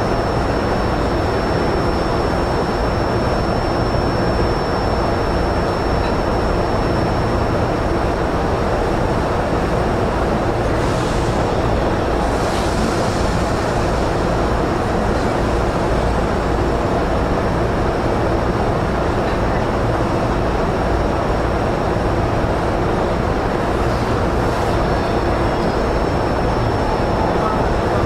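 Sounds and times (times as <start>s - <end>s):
train interior noise: 5.3s - 28.0s
thin high whine: 23.2s - 28.0s.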